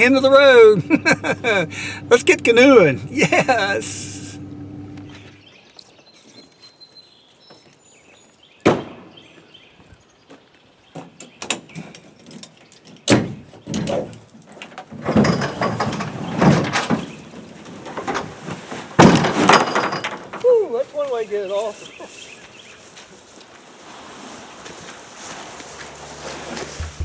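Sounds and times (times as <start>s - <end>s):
canoe scraping and thudding: 14.8s - 20.5s, 23.0s - 27.0s.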